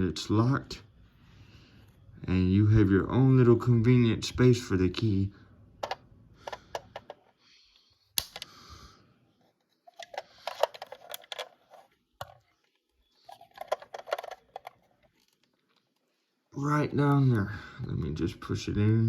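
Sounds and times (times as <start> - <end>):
small metal parts clicking and rattling: 9.8 - 15.8.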